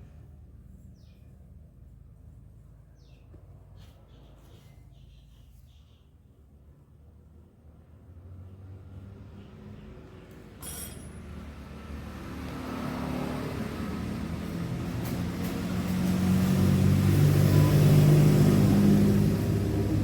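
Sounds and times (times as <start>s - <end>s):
vehicle engine humming: 11.6s - 20.0s.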